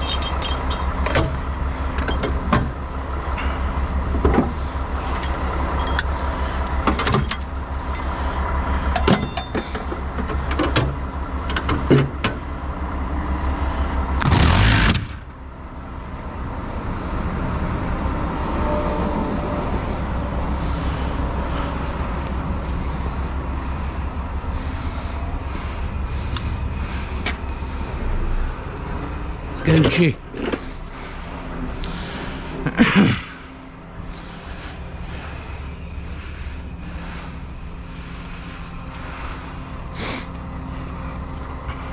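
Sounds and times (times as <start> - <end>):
sharp metallic clanks: 0.0 - 2.7, 5.0 - 6.3, 6.9 - 8.2, 8.9 - 10.0
truck engine idling: 0.0 - 41.9.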